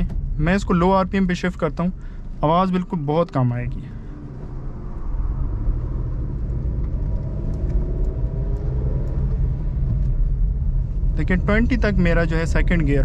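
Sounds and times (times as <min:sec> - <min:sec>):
road rumble: 0:00.0 - 0:13.0
car engine pulling away: 0:03.2 - 0:13.0.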